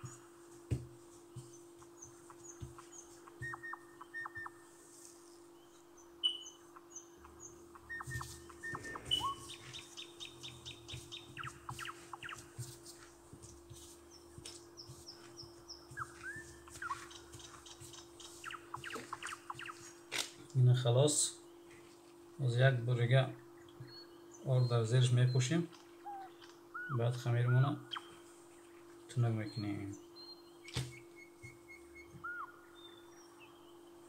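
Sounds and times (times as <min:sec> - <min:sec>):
soft thuds of kneading dough: 0:00.0 - 0:03.5
small birds chirping: 0:00.0 - 0:34.0
steady low hum: 0:00.0 - 0:34.0.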